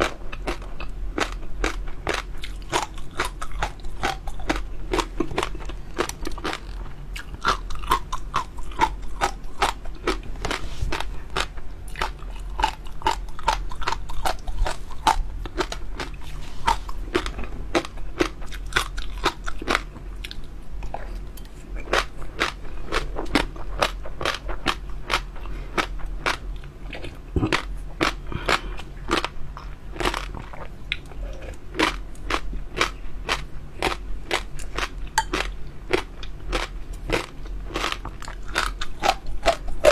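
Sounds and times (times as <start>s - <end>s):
chewing and crunching: 0.0s - 39.9s.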